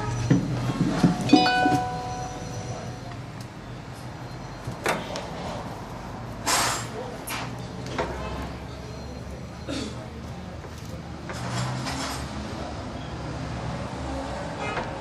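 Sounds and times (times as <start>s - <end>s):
ringing metallic tone: 1.3s - 3.2s.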